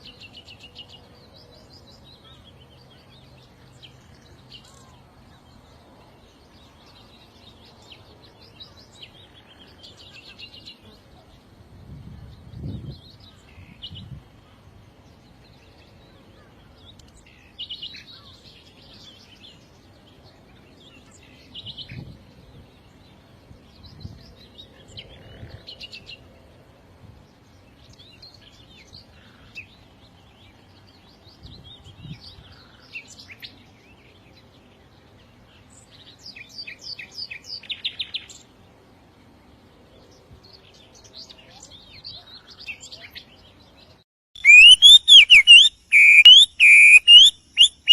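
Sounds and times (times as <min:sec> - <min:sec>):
songbirds chirping and singing: 0:27.3 - 0:47.9.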